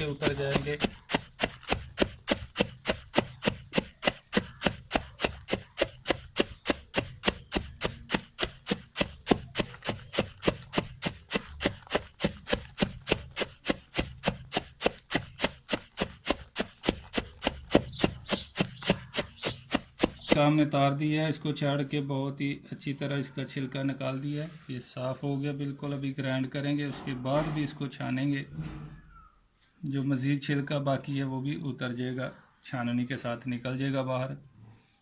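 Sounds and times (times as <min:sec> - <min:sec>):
grain tapping and rustling in tray: 0:00.0 - 0:20.5.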